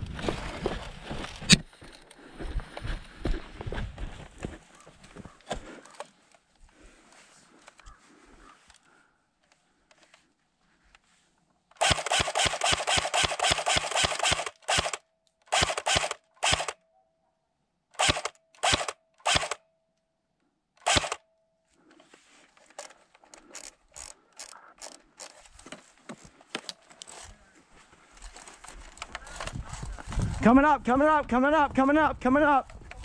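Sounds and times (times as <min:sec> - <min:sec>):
airsoft rifle firing bursts: 0:11.8 - 0:16.8, 0:18.0 - 0:19.6, 0:20.8 - 0:21.2
clicks and rustling: 0:21.9 - 0:27.4, 0:28.1 - 0:30.3.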